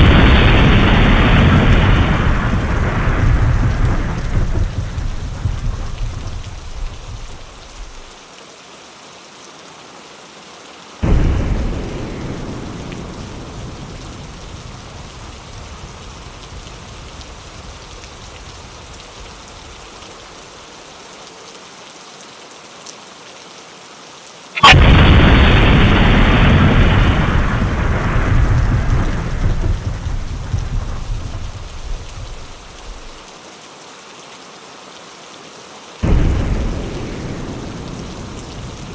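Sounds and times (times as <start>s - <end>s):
sharp thunder crack: 0.0s - 8.2s, 11.0s - 17.1s, 24.6s - 33.2s, 36.0s - 38.9s
thunder rumbling: 0.0s - 8.2s, 11.0s - 19.6s, 24.6s - 33.2s, 36.0s - 38.9s
steady rain: 0.0s - 38.9s.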